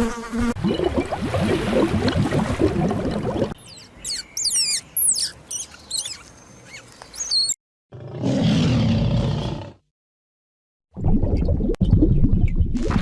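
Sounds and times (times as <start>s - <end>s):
high-pitched whistled chirps: 3.8s - 7.6s
rough roar-like animal call: 7.9s - 9.9s.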